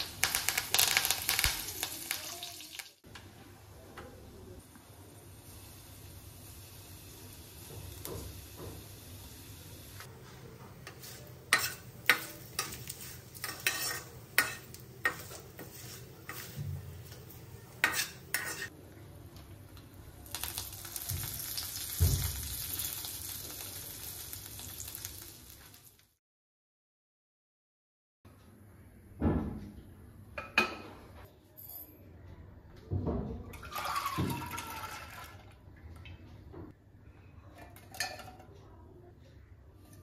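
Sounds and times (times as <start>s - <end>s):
food sizzling in hot oil: 0.0s - 3.0s, 5.1s - 10.1s, 11.0s - 16.7s, 20.2s - 26.2s
spatula scraping a pan: 10.8s - 18.7s.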